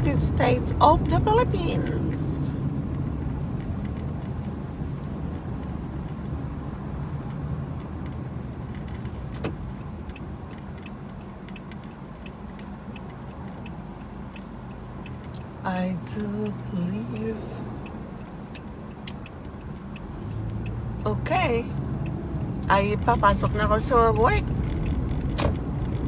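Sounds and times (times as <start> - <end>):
car interior road noise: 0.0 - 26.0
light ticks: 7.2 - 21.2, 21.8 - 26.0.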